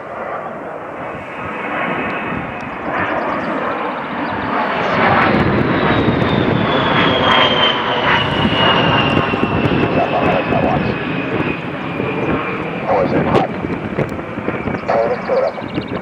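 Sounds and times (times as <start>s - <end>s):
jet engines roaring past: 0.0s - 16.0s
high whine sliding down: 4.8s - 14.2s.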